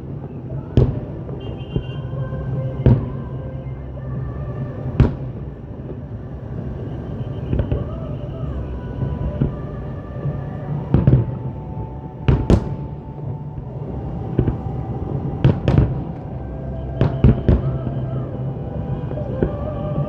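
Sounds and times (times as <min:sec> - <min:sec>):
music through loudspeakers: 0:07.5 - 0:20.0
fireworks bursting in sharp bangs: 0:12.3 - 0:13.6.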